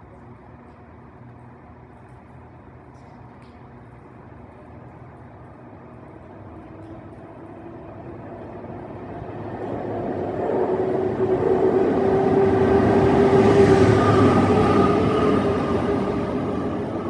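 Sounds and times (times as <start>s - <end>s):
steady train whine: 5.6s - 17.0s
train approaching: 5.8s - 17.0s.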